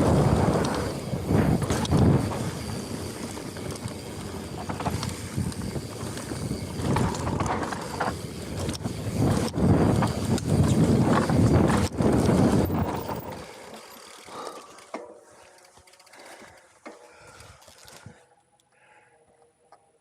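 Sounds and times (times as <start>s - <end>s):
wind buffeting microphone: 0.0s - 13.5s
bike tyres and rattling on dirt: 0.0s - 18.3s.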